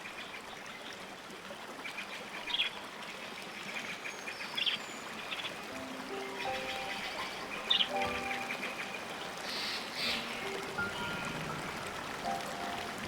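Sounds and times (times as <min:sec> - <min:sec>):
steady hiss like running water: 0:00.0 - 0:13.0
music notes: 0:05.7 - 0:13.0
short high bird calls: 0:06.4 - 0:11.4.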